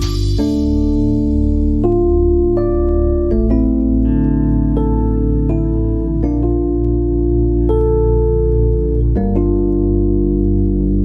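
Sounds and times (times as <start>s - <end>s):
sustained low bass: 0.0s - 11.0s.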